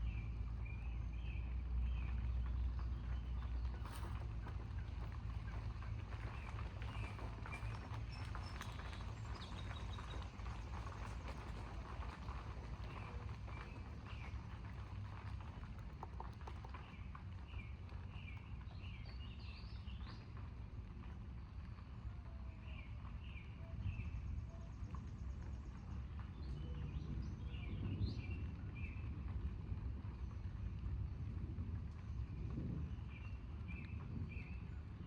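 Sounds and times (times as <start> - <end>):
low wind rumble: 0.0 - 35.0
small birds chirping: 6.3 - 11.6.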